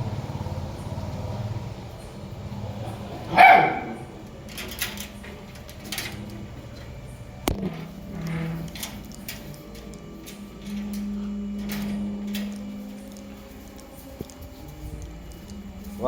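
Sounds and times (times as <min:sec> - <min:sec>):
faint clicks: 0:00.0 - 0:16.0
dog barking loudly: 0:02.7 - 0:04.2.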